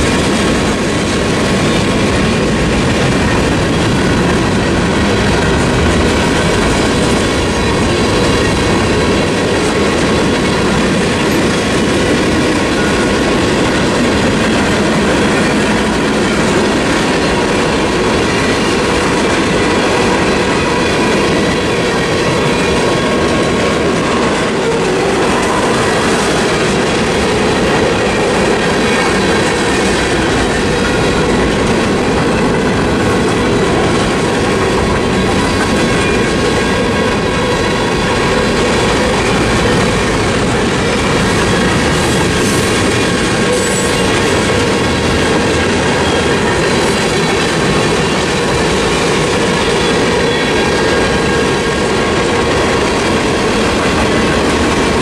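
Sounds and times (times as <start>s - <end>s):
freight train wheels clacking: 0.0s - 55.0s
train rumble: 0.0s - 55.0s.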